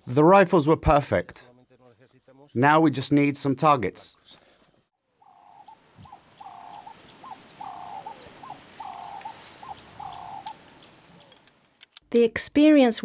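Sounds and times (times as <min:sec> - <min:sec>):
small birds chirping faintly: 0:05.1 - 0:11.9.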